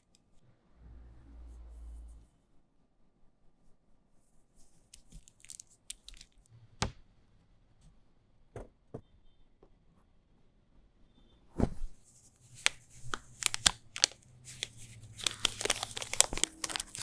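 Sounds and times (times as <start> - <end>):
snack packet crackling: 5.0 - 6.4, 12.6 - 17.0.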